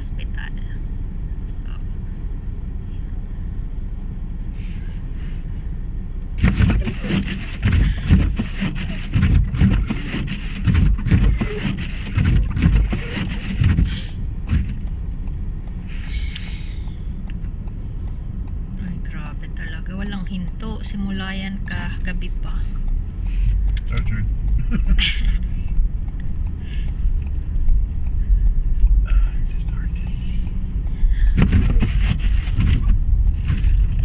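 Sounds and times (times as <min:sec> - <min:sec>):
car interior rumble: 0:00.0 - 0:34.0
loud knocks and rustles: 0:06.4 - 0:15.0, 0:31.3 - 0:34.0.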